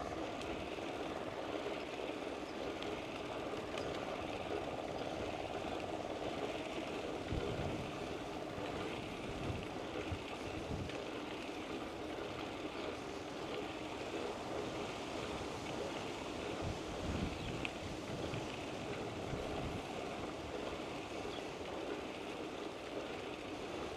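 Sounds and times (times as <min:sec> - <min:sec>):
bicycle tyres rolling: 0:00.0 - 0:23.9
wind buffeting microphone: 0:07.2 - 0:11.1, 0:14.8 - 0:21.4.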